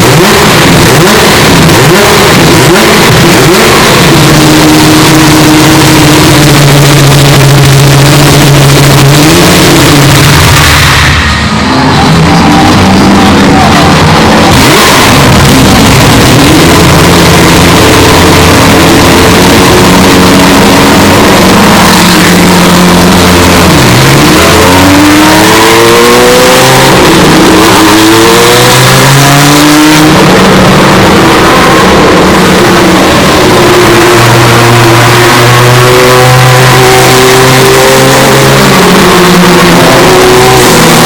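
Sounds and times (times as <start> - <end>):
engine upshifting: 0.0 - 41.0
race car engines howling past: 0.0 - 41.0.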